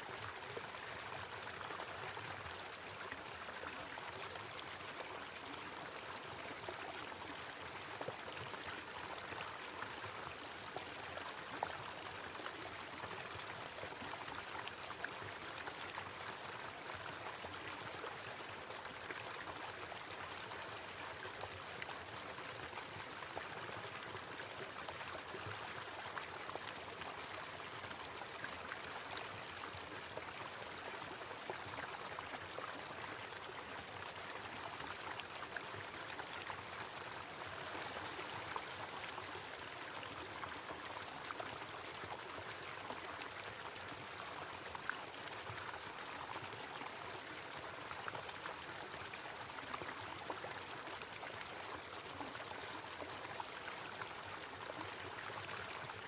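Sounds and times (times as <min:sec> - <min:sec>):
small waterfall splashing: 0:00.0 - 0:56.0.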